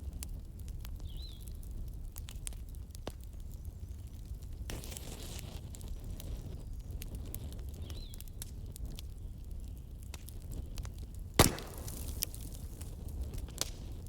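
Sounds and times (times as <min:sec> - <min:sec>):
wood fire crackling: 0:00.0 - 0:14.0
loud sharp pop: 0:11.4 - 0:12.5.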